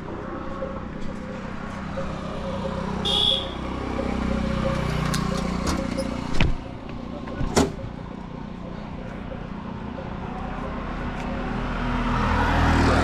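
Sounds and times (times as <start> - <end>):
road rumble: 0.0 - 13.0
wind: 0.0 - 13.0
vehicle engine passing by: 8.4 - 13.0.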